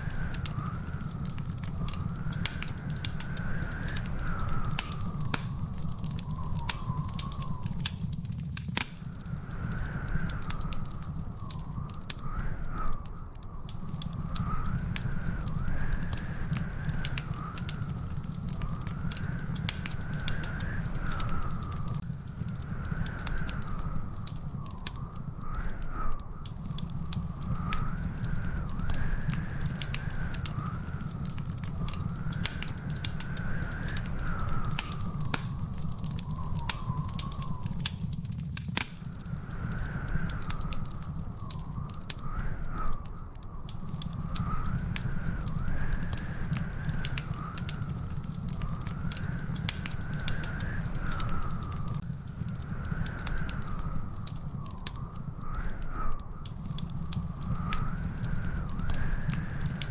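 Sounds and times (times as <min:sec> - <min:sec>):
wavering whistling tone: 0:00.0 - 0:08.3, 0:22.8 - 0:38.3, 0:39.0 - 0:59.9
wood fire crackling and popping: 0:00.0 - 0:59.9.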